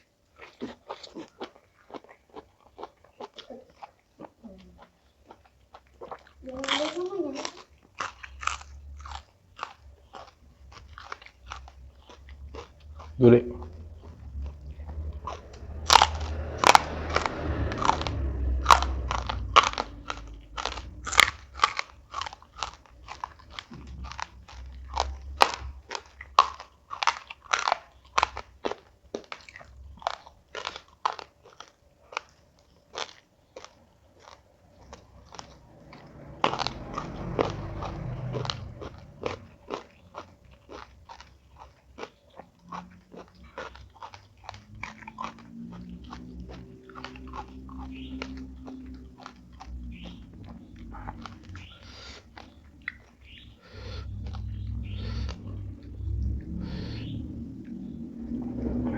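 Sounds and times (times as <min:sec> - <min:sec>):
chewing crunchy food: 0:00.0 - 0:58.9.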